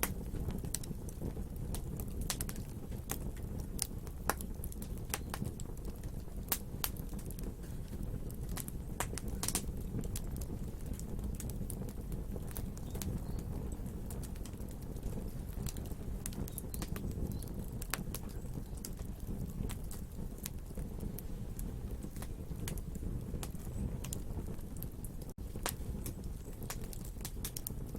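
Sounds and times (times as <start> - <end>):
burning wood crackling and popping: 0.0 - 27.9
low rumble of flames: 0.0 - 27.9.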